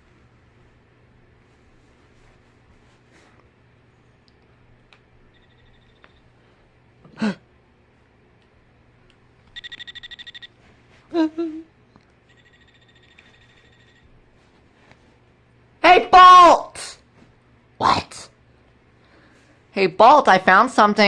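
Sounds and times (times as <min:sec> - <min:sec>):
rapid bird trill: 0:09.6 - 0:10.5, 0:12.3 - 0:14.0.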